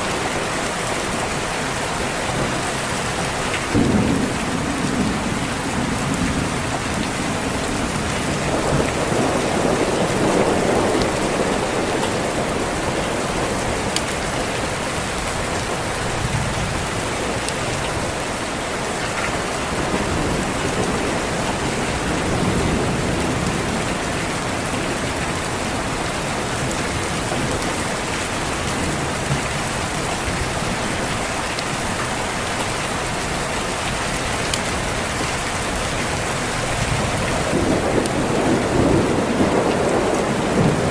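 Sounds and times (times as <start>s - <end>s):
heavy rain: 0.0s - 40.9s
low rolls of thunder: 3.7s - 18.1s, 19.6s - 27.7s, 36.6s - 40.9s.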